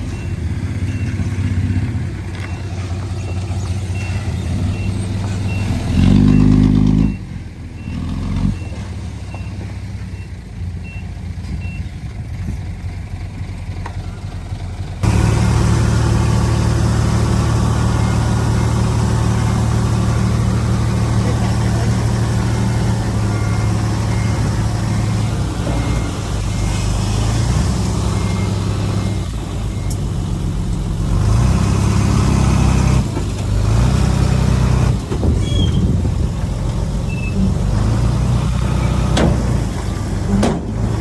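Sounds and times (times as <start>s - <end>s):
reversing alarm beeping: 0.0s - 11.9s, 15.0s - 30.1s
heavy diesel engines running: 0.0s - 41.0s.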